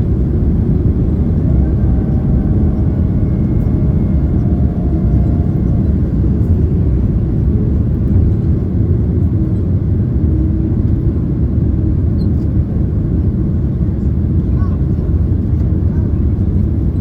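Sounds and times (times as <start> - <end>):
faint high hum: 0.0 - 8.7
aircraft engines rumbling: 0.0 - 17.0.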